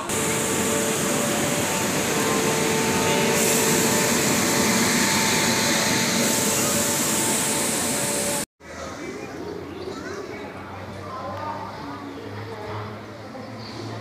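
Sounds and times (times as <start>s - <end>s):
electric train humming and hissing: 0.0s - 8.5s
steady whine: 0.0s - 8.5s.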